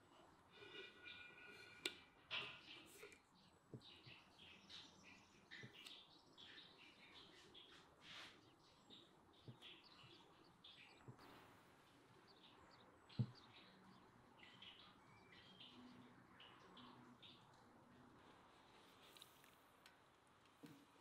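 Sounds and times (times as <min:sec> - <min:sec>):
faint birds chirping: 0:00.0 - 0:21.0.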